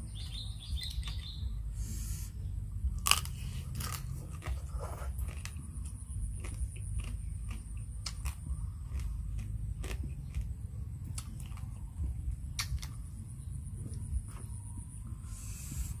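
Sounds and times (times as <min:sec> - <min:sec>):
chewing and sucking: 0:00.8 - 0:13.2
crab shell clicking and cracking: 0:03.0 - 0:11.8, 0:12.5 - 0:13.0
lip smacks: 0:03.0 - 0:11.8, 0:12.5 - 0:13.0.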